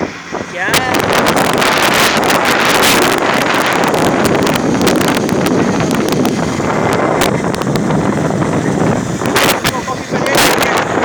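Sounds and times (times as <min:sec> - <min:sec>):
moving vehicle running: 0:00.0 - 0:11.0
wind buffeting microphone: 0:00.0 - 0:11.0.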